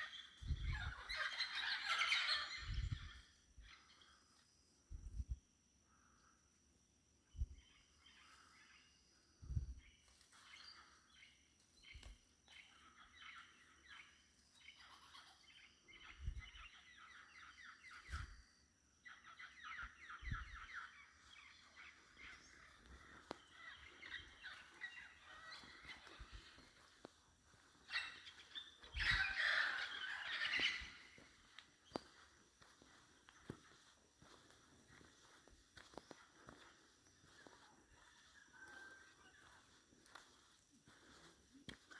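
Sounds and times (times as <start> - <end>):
birds chattering and trilling: 0.0 - 5.3, 7.2 - 41.9.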